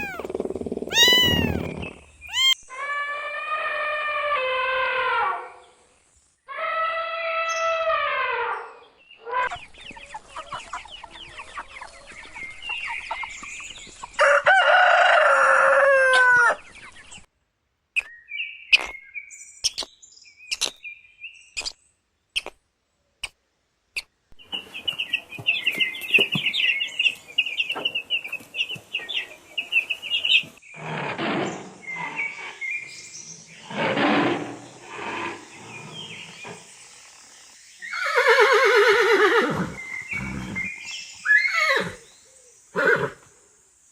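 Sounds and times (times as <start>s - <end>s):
rooster crowing: 0.0s - 0.3s, 0.9s - 1.7s, 2.3s - 2.6s, 14.2s - 16.6s
chickens clucking: 0.0s - 2.6s, 9.5s - 14.1s.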